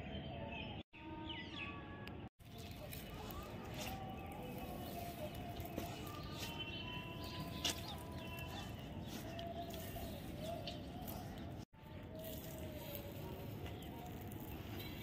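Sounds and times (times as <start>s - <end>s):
bird calls: 2.6s - 11.6s.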